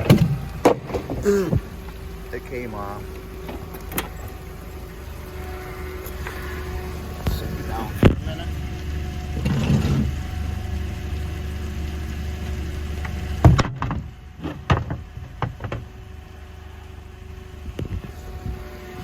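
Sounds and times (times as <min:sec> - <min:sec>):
vehicle engine idling: 0:00.0 - 0:19.0
sharp knocks and clicks: 0:13.0 - 0:15.9.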